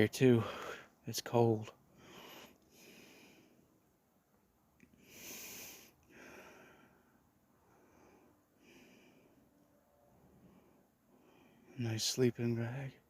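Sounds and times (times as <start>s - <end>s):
person breathing: 0.4s - 1.0s, 1.9s - 3.6s, 5.0s - 9.5s, 10.3s - 11.8s.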